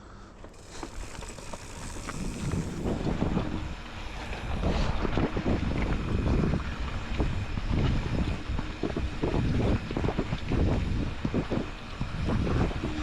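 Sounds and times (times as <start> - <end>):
wind buffeting microphone: 0.6 - 13.0.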